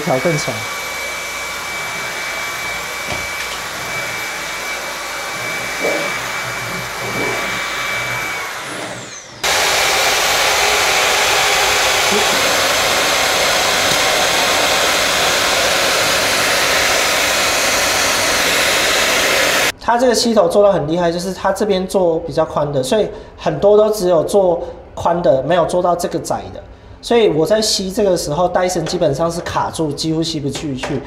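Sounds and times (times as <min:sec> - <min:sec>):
stick vacuum cleaner running: 0:00.0 - 0:19.7.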